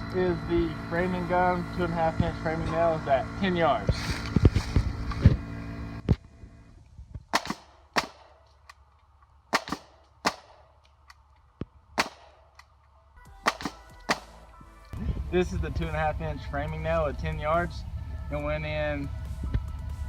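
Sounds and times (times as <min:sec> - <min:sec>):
nail gun firing: 0:07.3 - 0:08.8, 0:09.5 - 0:11.2, 0:12.0 - 0:12.7, 0:13.4 - 0:14.5.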